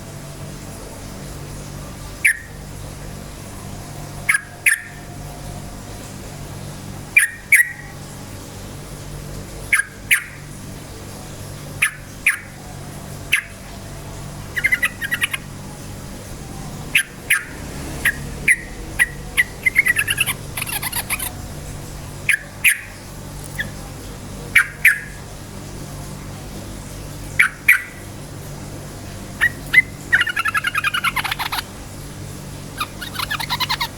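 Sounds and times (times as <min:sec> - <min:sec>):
steady low hum: 0:00.0 - 0:33.9
bird chirping: 0:02.2 - 0:02.6, 0:04.3 - 0:05.1, 0:14.5 - 0:15.5, 0:16.8 - 0:21.6, 0:22.2 - 0:23.8, 0:24.6 - 0:25.2, 0:27.4 - 0:28.0, 0:29.4 - 0:31.7, 0:32.7 - 0:33.9.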